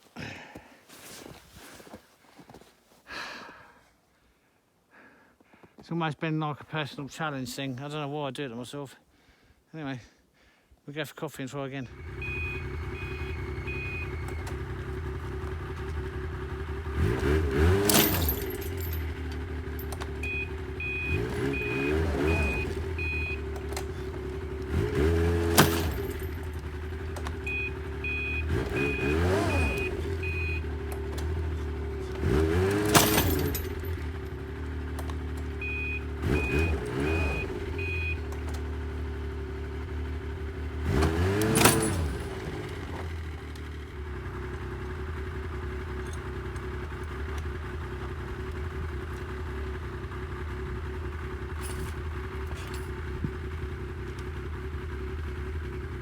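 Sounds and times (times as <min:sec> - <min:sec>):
snowmobile engine revving: 0:11.8 - 0:34.5, 0:35.6 - 0:38.5, 0:40.6 - 0:43.3
warning beeper short beeps: 0:11.9 - 0:14.5, 0:20.2 - 0:23.5, 0:27.4 - 0:30.7, 0:35.6 - 0:38.3.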